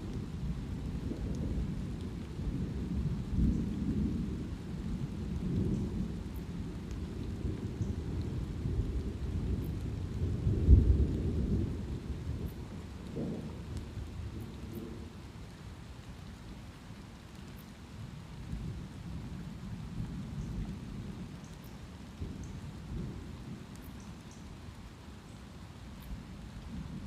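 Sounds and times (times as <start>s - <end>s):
thunder rumbling: 0.0s - 15.2s
light rain: 0.0s - 27.0s.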